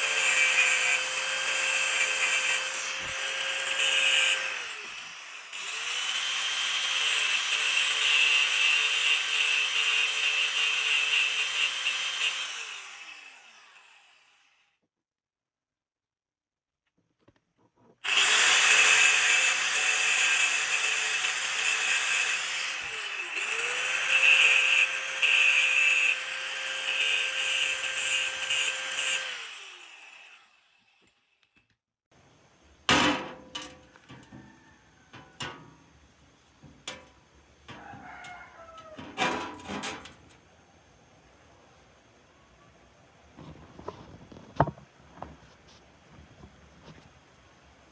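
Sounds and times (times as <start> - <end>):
electric power tool running: 0.0 - 14.6, 18.0 - 31.0.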